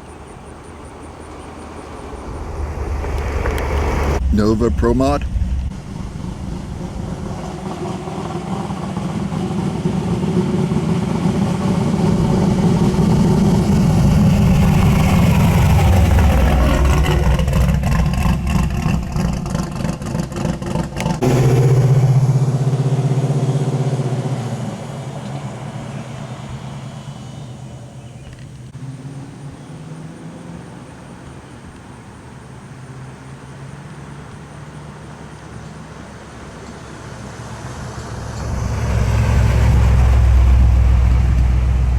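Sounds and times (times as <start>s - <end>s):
car engine running loud: 0.0s - 41.9s.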